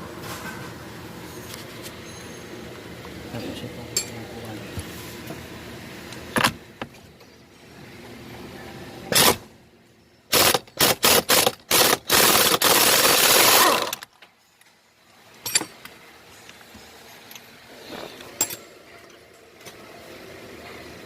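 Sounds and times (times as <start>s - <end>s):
power tool driving screws: 9.2s - 9.4s, 10.3s - 14.1s.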